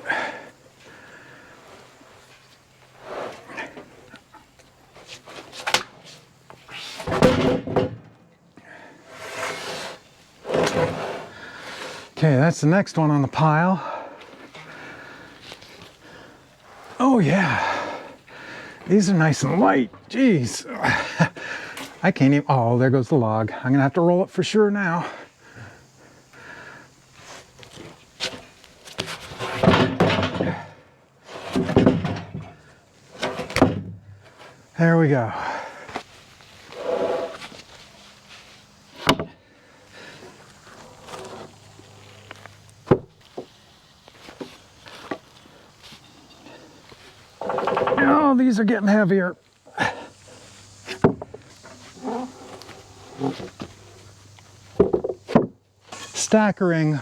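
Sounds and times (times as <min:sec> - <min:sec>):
wooden knocks and thuds: 0:07.0 - 0:08.2, 0:29.0 - 0:30.7, 0:31.5 - 0:32.6, 0:33.2 - 0:34.0, 0:39.0 - 0:39.4, 0:42.8 - 0:43.5, 0:47.4 - 0:48.2, 0:50.9 - 0:51.4, 0:54.8 - 0:55.6
wooden slabs scraping and knocking: 0:09.1 - 0:12.4, 0:27.2 - 0:34.5, 0:35.8 - 0:39.4, 0:40.0 - 0:48.8, 0:50.8 - 0:54.1, 0:54.7 - 0:56.4.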